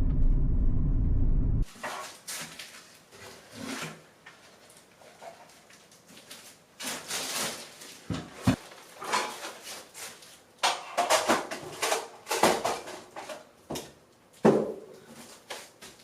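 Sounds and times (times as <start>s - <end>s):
rustling and scraping: 1.6s - 13.5s.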